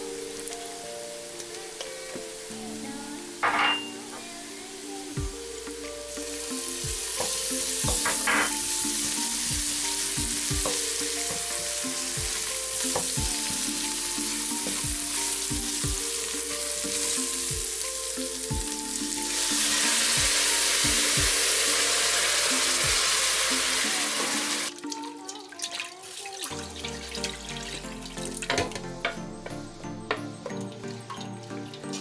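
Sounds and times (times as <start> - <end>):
onions frying in butter: 0.0 - 24.7
broth poured into hot pot: 5.7 - 24.8.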